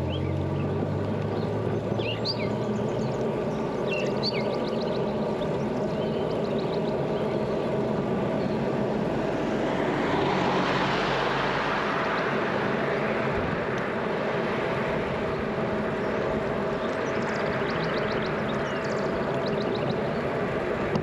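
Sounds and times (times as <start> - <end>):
motor vehicle passing: 0.0 - 21.0.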